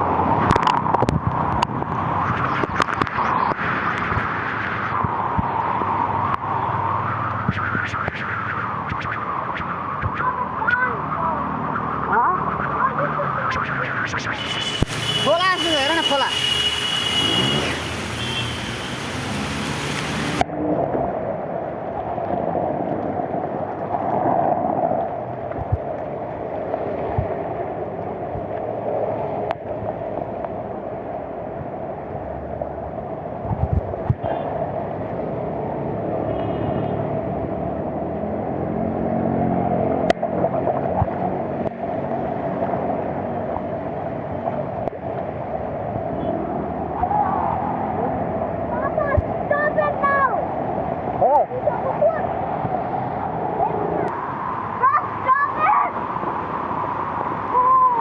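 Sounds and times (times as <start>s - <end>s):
floodwater running: 0.5s - 20.4s
heavy rain rushing: 8.2s - 20.5s.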